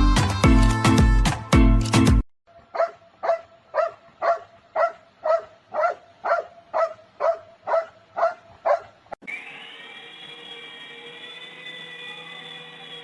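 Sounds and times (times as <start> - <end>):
dog barking: 2.7 - 9.0.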